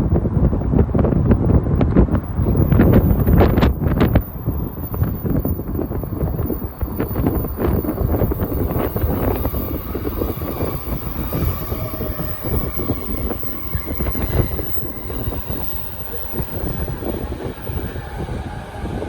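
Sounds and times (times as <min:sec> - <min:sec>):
electric train rumbling: 0:00.0 - 0:19.0
wind buffeting microphone: 0:00.0 - 0:19.0.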